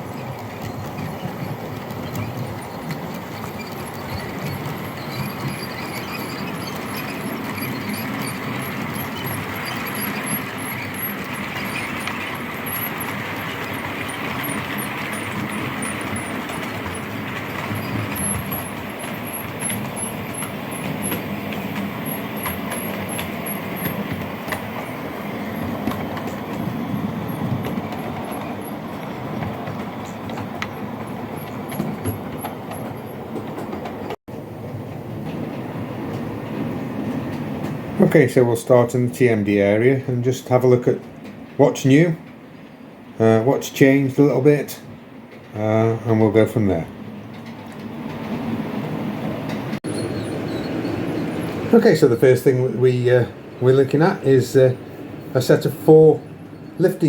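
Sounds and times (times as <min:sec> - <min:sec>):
model trains running on track: 0:00.0 - 0:57.0.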